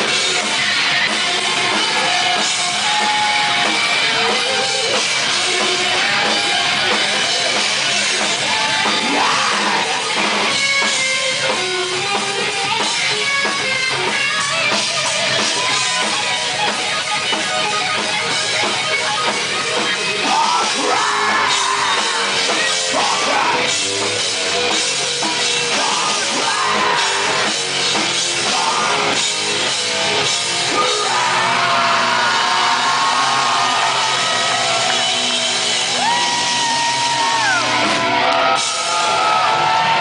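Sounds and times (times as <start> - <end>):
distorted guitar: 0.0 - 40.0
drums: 0.0 - 40.0
metal band playing: 0.0 - 40.0
shouted vocals: 8.4 - 10.2, 20.2 - 23.8, 25.7 - 27.5, 30.7 - 40.0.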